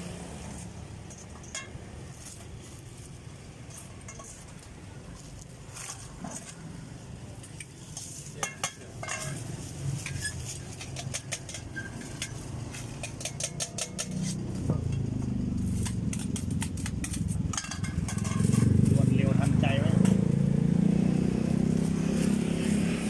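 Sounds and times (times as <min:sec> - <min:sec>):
metal utensils clinking on dishes: 0:07.5 - 0:15.0, 0:15.8 - 0:20.1.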